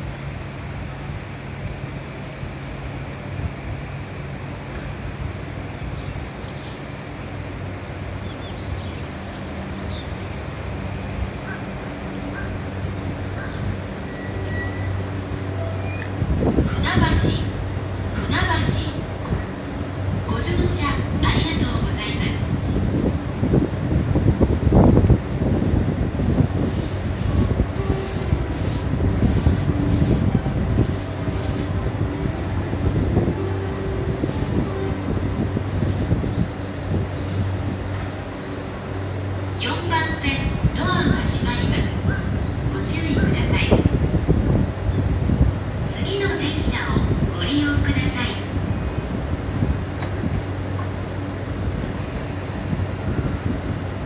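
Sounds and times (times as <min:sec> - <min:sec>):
electric train humming: 0:00.0 - 0:54.0
wheels on rails: 0:11.4 - 0:54.0
hissing: 0:24.2 - 0:37.7.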